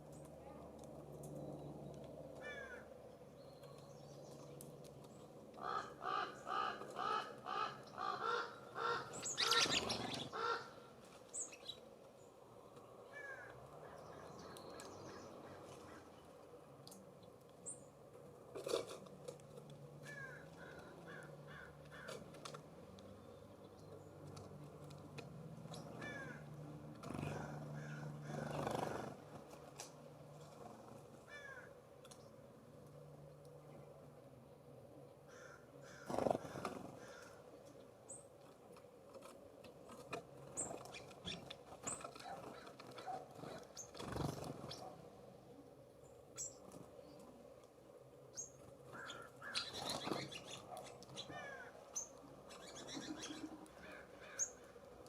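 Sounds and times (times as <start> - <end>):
jay harsh rasping calls: 5.6 - 10.8.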